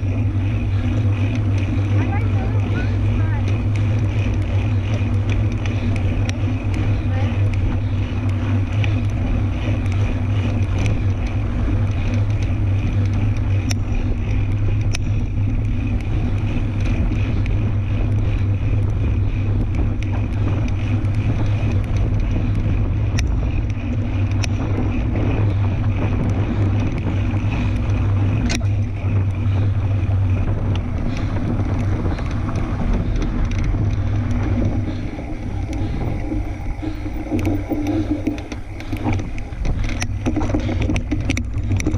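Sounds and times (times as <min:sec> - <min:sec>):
bike clicks and rattles: 0:00.0 - 0:41.9
wind noise on microphone: 0:00.0 - 0:41.9.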